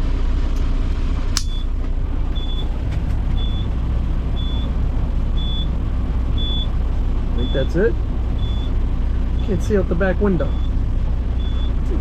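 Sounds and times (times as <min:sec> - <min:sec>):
diesel engine idling: 0:00.0 - 0:12.0
sharp click: 0:01.4 - 0:01.6
high-pitched warning beep: 0:04.4 - 0:04.7, 0:05.4 - 0:05.7, 0:06.4 - 0:06.7, 0:07.4 - 0:07.8, 0:08.4 - 0:08.7, 0:10.4 - 0:10.8, 0:11.4 - 0:11.8.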